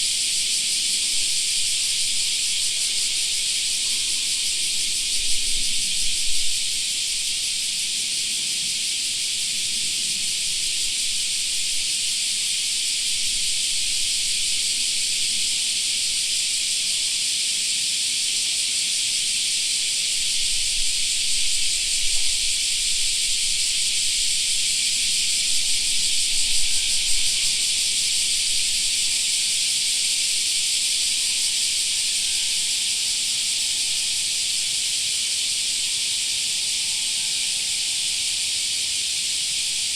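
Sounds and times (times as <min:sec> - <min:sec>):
cicadas droning: 0:00.0 - 0:39.9.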